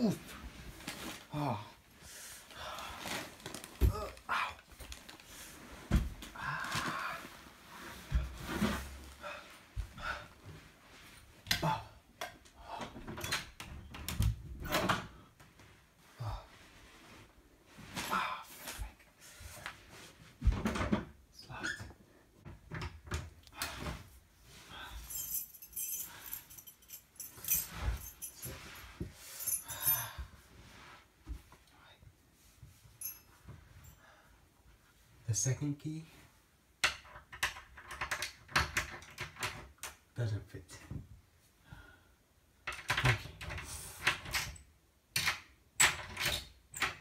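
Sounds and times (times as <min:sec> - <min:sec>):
keys jangling: 0:25.0 - 0:28.8.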